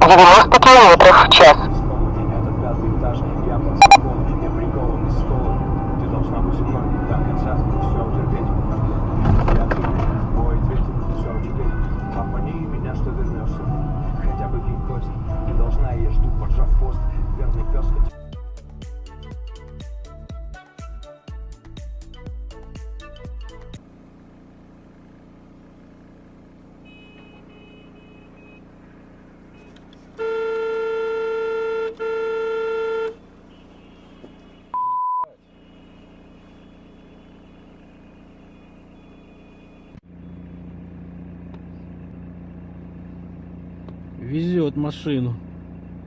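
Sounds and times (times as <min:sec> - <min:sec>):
engine and road hum: 0:00.0 - 0:18.2, 0:22.0 - 0:46.0
car horn: 0:03.8 - 0:04.0, 0:26.8 - 0:28.8, 0:29.6 - 0:40.0
short single-tone beep: 0:03.8 - 0:04.0, 0:26.9 - 0:28.6, 0:34.7 - 0:35.4.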